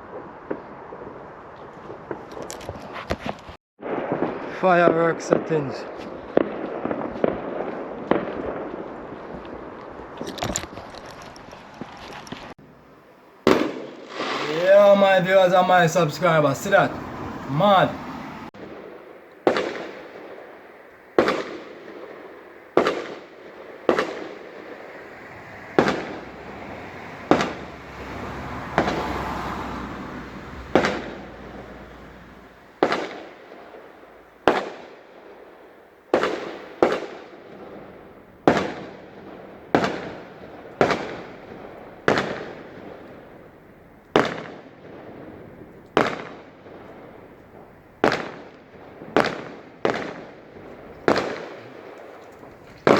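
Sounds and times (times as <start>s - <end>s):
fireworks bangs with echo: 3.8s - 10.2s, 13.4s - 29.4s, 30.6s - 52.9s
fireworks hiss: 13.4s - 16.2s.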